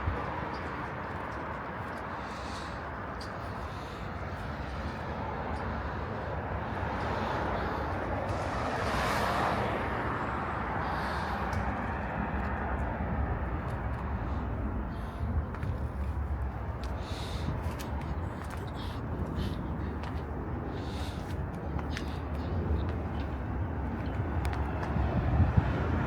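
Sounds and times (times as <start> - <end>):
traffic noise: 0.0 - 26.0
vehicle passing: 5.2 - 15.2.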